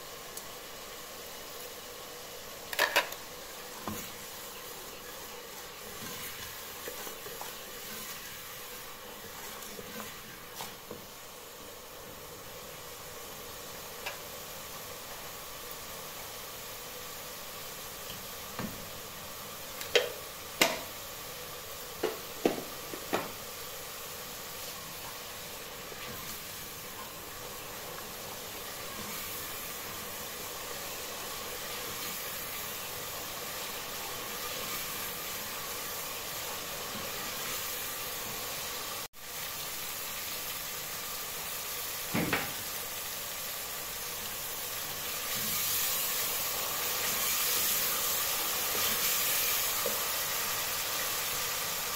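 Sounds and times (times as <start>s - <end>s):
food sizzling in hot oil: 0.0s - 51.9s
wooden spoon stirring: 5.5s - 8.5s.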